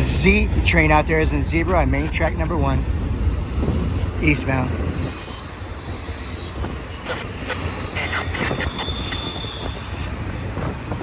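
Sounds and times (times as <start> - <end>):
railcars rumbling on rails: 0.0 - 11.0
high wheel squeal: 3.2 - 11.0.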